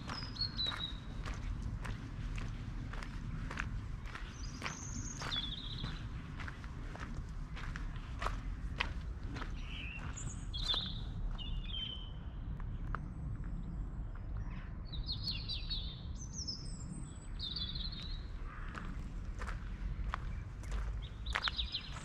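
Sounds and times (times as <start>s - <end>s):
footsteps on gravel: 0.0s - 11.5s, 18.0s - 22.0s
songbirds chirping and singing: 0.0s - 13.0s, 14.4s - 22.0s
steady low rumble: 0.0s - 22.0s.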